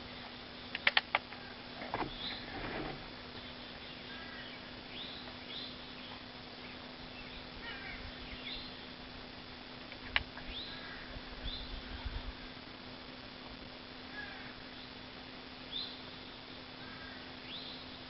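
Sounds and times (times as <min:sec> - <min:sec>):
birds chirping: 0:01.9 - 0:02.6, 0:03.3 - 0:09.1, 0:10.4 - 0:12.3, 0:15.6 - 0:18.0.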